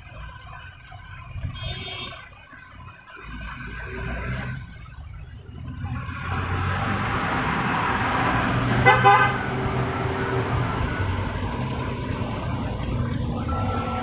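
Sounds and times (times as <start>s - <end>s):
road traffic noise: 0.0s - 14.0s
vehicle horn honking: 1.5s - 2.3s, 8.6s - 14.0s.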